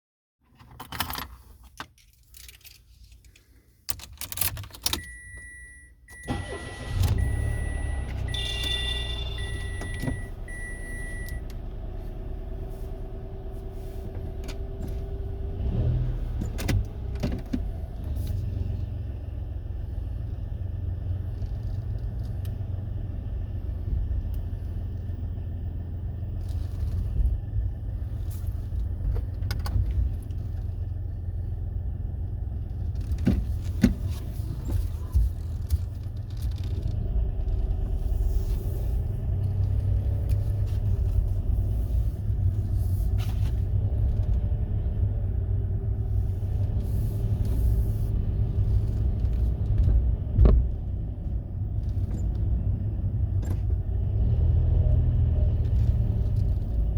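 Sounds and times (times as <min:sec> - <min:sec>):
car engine rumbling: 0:00.5 - 0:56.9.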